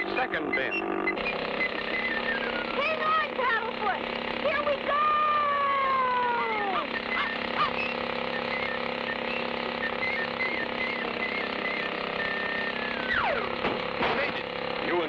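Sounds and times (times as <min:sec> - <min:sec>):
falling whistle-like glide: 0:00.5 - 0:02.8, 0:06.6 - 0:13.5.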